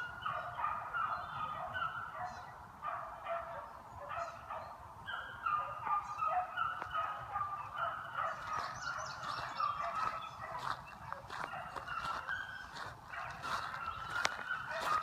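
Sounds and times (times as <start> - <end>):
hounds barking and baying: 0.0 - 15.0.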